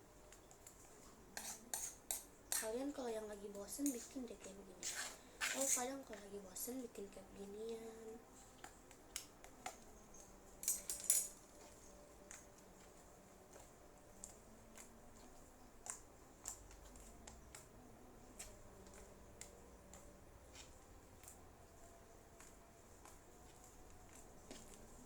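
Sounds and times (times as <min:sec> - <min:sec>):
slime being kneaded by hand: 0:11.4 - 0:25.0.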